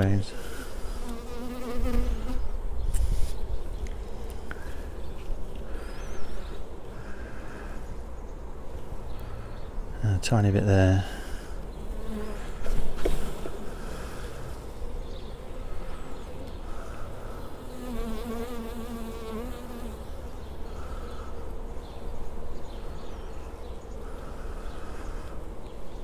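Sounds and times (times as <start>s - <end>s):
honeybees buzzing: 0.0s - 9.9s, 10.8s - 26.0s
bee flying close past: 0.5s - 3.8s, 11.7s - 25.4s.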